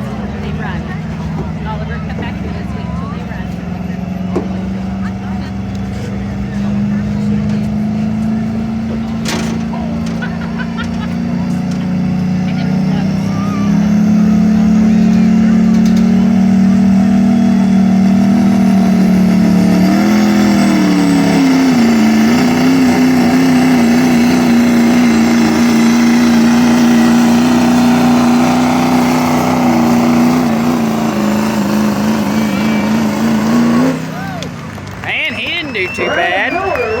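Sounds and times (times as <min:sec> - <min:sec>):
diesel engine at full throttle: 0:00.0 - 0:37.0.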